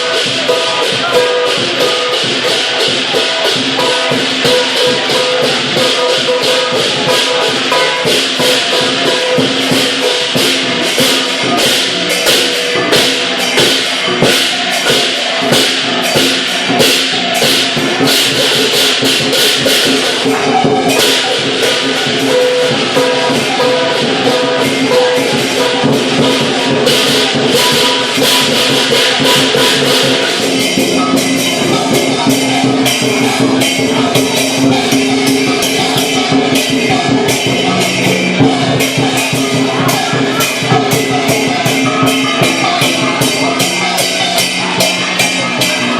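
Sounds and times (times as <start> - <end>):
big drum beating: 0.0 - 45.9
gong ringing: 0.0 - 45.9
hand cymbals clashing: 0.0 - 45.9.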